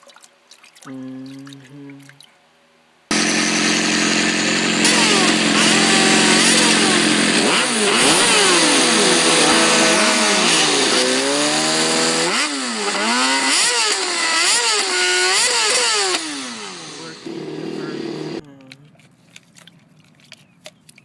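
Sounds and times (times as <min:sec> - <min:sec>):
engine revving: 0:03.1 - 0:18.4.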